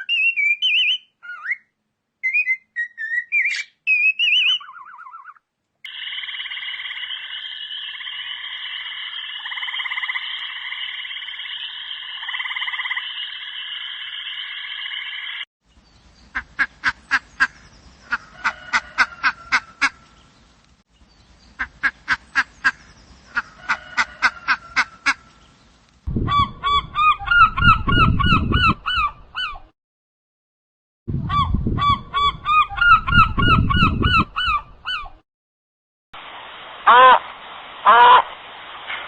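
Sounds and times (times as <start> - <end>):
sharp clicking bird calls: 3.0 - 15.4.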